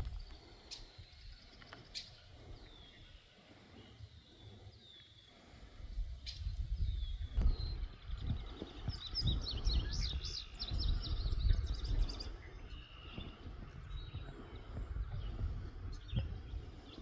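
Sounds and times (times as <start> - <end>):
songbird chirping: 0.0 - 17.0
low uneven rumble: 5.4 - 17.0.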